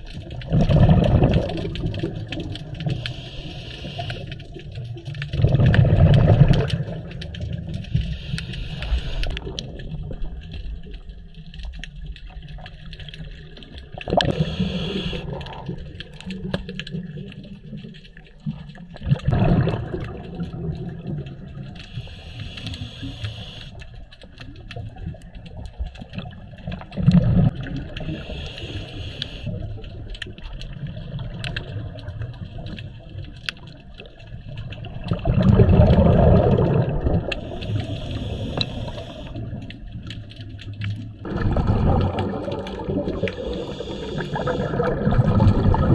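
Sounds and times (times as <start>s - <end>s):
exhaled bubbles gushing: 0.0s - 22.1s, 24.5s - 28.7s, 29.4s - 45.9s
regulator inhale hiss: 2.9s - 4.4s, 7.9s - 9.4s, 14.2s - 15.5s, 21.8s - 23.8s, 28.1s - 29.6s, 37.3s - 39.5s, 43.1s - 44.8s.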